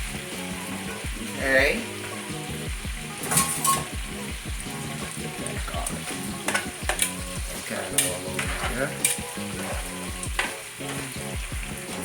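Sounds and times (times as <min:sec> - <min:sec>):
background music with beat: 0:00.0 - 0:12.0
meat sizzling in a pan: 0:00.0 - 0:12.0
utensil clicking against pan: 0:05.4 - 0:11.1.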